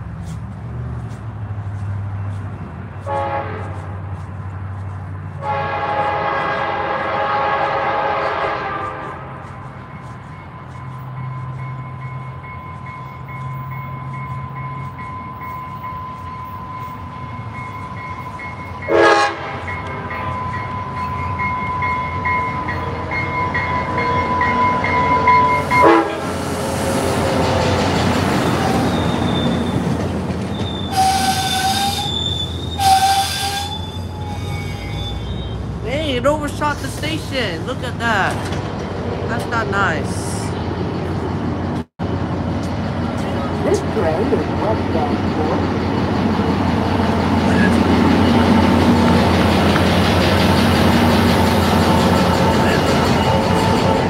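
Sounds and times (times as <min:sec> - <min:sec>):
locomotive running past: 0:00.0 - 0:54.0
train horn blasts: 0:03.0 - 0:04.0, 0:05.3 - 0:09.7, 0:18.8 - 0:20.3, 0:24.2 - 0:27.0, 0:30.9 - 0:32.2, 0:32.8 - 0:35.2
train bell ringing: 0:09.6 - 0:26.4, 0:43.7 - 0:54.0
brakes squealing: 0:19.5 - 0:37.8, 0:42.5 - 0:54.0.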